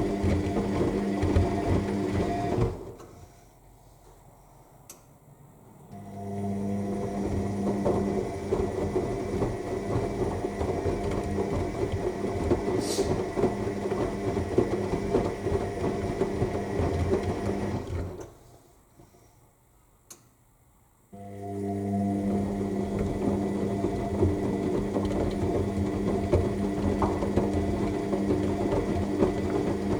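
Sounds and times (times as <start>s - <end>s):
washing machine motor hum: 0.0s - 3.2s, 5.6s - 18.4s, 21.2s - 29.9s
laundry tumbling in drum: 7.4s - 18.2s, 22.8s - 29.9s.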